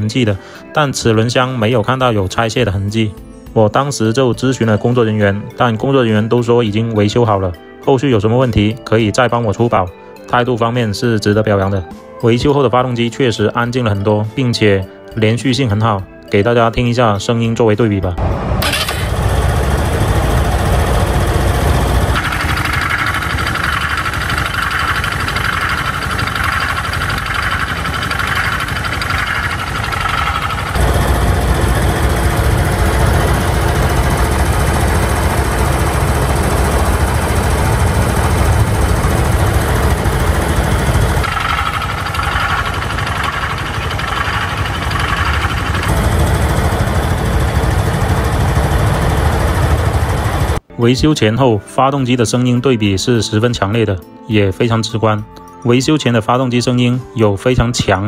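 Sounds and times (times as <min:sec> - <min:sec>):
scooter engine running: 0:18.6 - 0:50.7.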